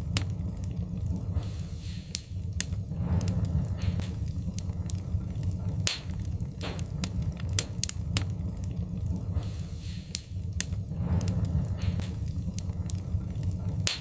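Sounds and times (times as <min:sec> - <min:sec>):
burning wood popping and snapping: 0:00.0 - 0:14.0
low rumble of flames: 0:00.0 - 0:14.0.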